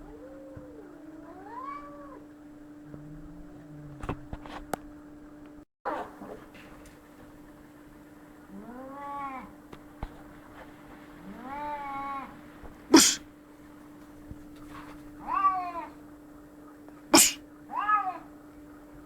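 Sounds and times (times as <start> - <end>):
cats yowling: 0.0 - 4.4, 8.4 - 9.7, 11.1 - 13.2, 14.7 - 16.2, 17.2 - 18.5
cats spitting: 12.8 - 13.3, 17.1 - 17.5.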